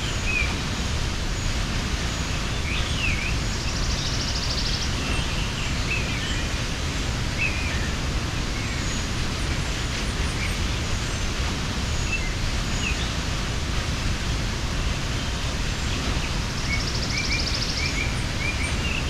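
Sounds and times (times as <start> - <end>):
waterfall rushing: 0.0 - 19.0
birds chirping and whistling: 15.8 - 19.0.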